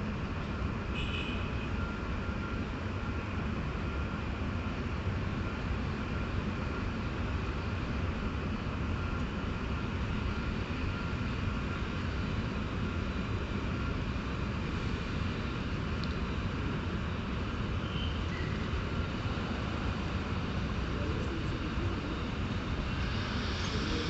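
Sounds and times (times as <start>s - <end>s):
train low rumble: 2.0s - 24.0s
faint thin whine: 17.0s - 24.0s.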